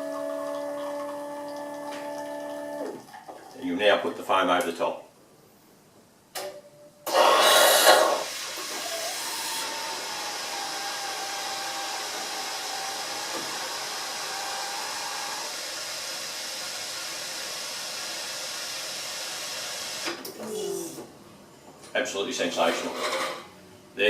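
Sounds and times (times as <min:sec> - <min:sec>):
coffee machine steaming milk: 0:00.0 - 0:03.0, 0:07.1 - 0:20.2.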